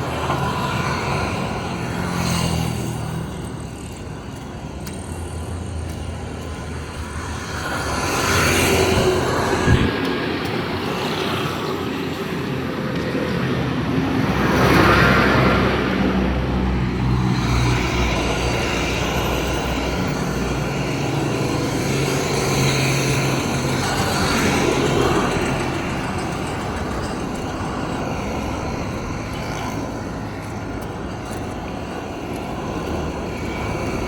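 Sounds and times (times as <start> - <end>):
vehicle passing: 0.0 - 11.6
vehicle engine humming: 0.0 - 34.0.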